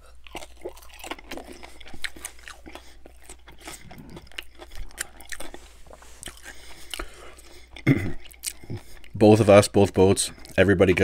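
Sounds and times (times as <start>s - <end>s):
bacon crunching while chewed: 0.0s - 11.0s.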